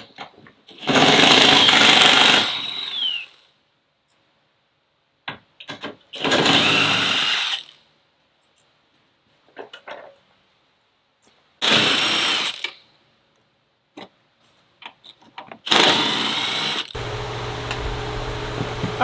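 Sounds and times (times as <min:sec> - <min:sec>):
power tool whirring: 0:00.8 - 0:03.4, 0:06.2 - 0:07.7, 0:15.7 - 0:19.0
steady hum: 0:17.0 - 0:19.0.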